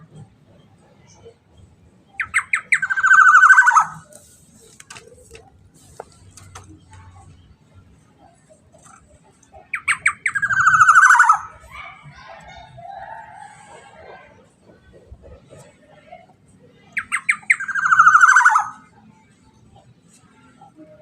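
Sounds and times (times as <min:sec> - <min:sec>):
oriole calling: 0:02.2 - 0:04.1, 0:09.6 - 0:11.8.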